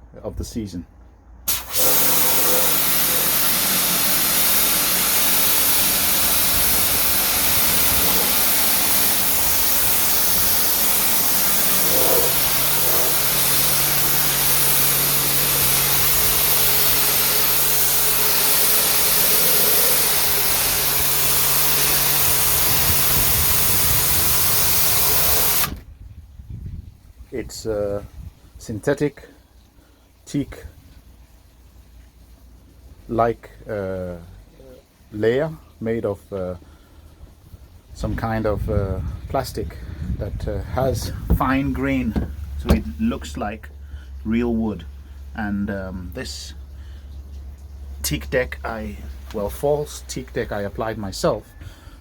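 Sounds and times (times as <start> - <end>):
pressure washer jet hissing: 1.5 - 25.8, 40.8 - 43.8
pressure washer motor hum: 1.5 - 25.8, 40.5 - 45.3.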